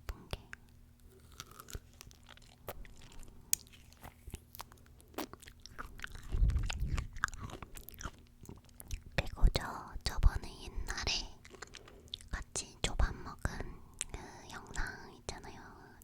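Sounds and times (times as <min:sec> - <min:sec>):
chewing fresh fruit: 0:00.5 - 0:09.7, 0:10.9 - 0:12.5.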